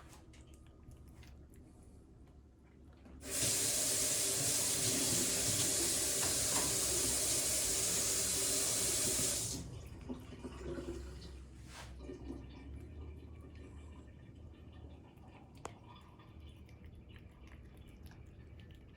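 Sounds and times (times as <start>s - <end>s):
water running: 3.2s - 18.9s
faint drips: 9.0s - 18.9s.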